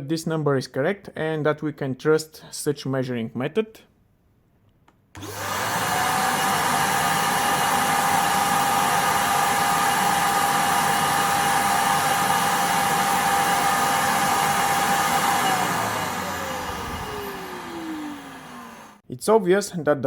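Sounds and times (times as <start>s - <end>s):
vacuum cleaner motor whine: 5.2s - 19.0s.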